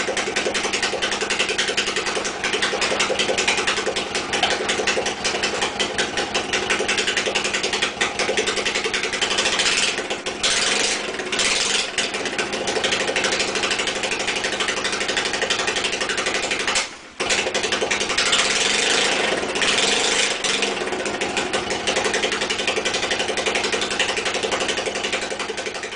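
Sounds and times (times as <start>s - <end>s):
motorcycle engine idling: 0.0s - 25.9s.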